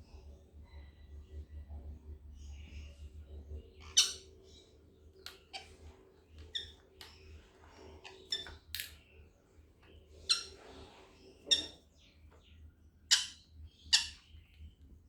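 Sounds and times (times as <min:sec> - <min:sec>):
parrots calling: 0:10.2 - 0:10.8, 0:11.4 - 0:11.8, 0:13.1 - 0:14.4.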